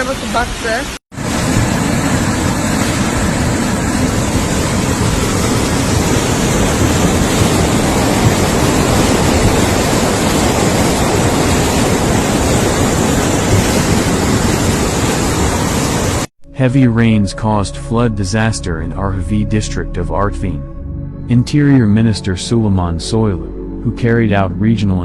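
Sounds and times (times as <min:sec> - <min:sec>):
floodwater rushing: 0:00.0 - 0:16.3.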